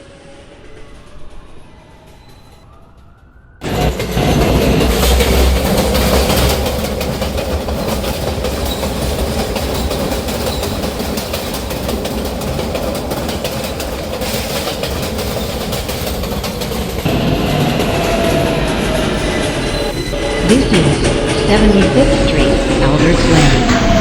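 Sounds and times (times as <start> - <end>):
subway train wheels rumbling: 0.0 - 24.0
wheels clicking over rail joints: 3.6 - 17.2.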